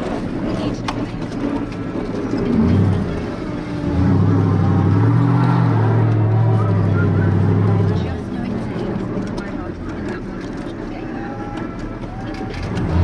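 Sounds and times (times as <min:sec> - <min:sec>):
monster truck engine revving: 0:01.4 - 0:09.4, 0:11.7 - 0:13.0.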